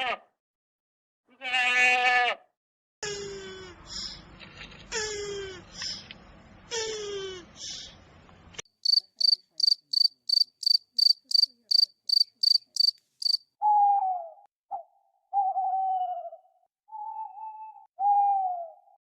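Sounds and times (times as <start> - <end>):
cricket chirping: 8.8 - 13.4.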